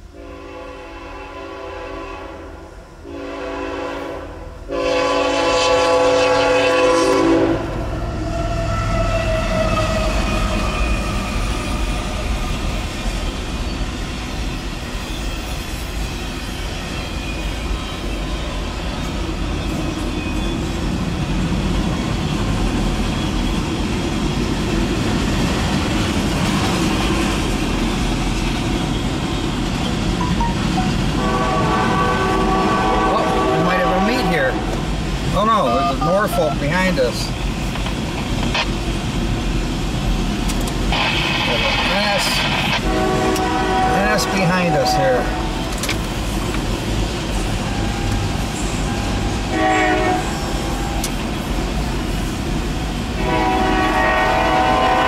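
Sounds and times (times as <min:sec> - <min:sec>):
train wheels rumbling on rail: 0:00.0 - 0:55.0
train horn blasts: 0:00.1 - 0:11.3, 0:30.9 - 0:34.8, 0:42.1 - 0:45.7, 0:48.9 - 0:51.0, 0:53.2 - 0:55.0
clickety-clack of rail cars: 0:04.8 - 0:35.6, 0:36.8 - 0:55.0.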